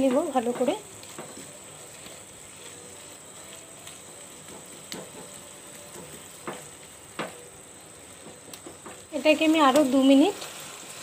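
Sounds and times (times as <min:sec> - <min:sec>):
spatula scraping a pan: 0:00.0 - 0:06.8
meat sizzling in a frying pan: 0:00.0 - 0:11.0.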